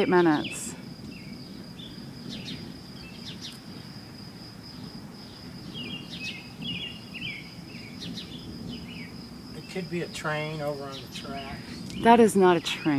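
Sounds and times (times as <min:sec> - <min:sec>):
distant constant roar in sky: 0:00.0 - 0:12.9
insect high trill: 0:00.0 - 0:12.9
bird chirps: 0:00.2 - 0:03.8, 0:05.2 - 0:12.9.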